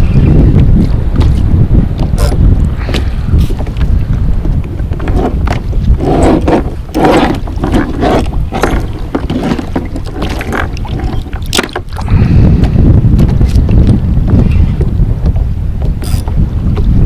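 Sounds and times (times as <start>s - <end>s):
wind buffeting microphone: 0.0s - 17.0s
waves slapping against kayak hull: 4.6s - 12.1s.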